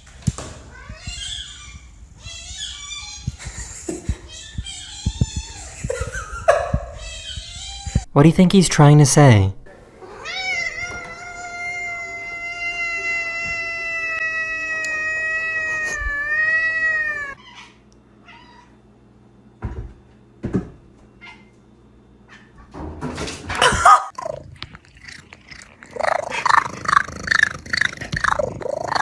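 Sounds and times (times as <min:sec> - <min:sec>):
cat yowling: 0:10.1 - 0:18.8, 0:23.6 - 0:24.4.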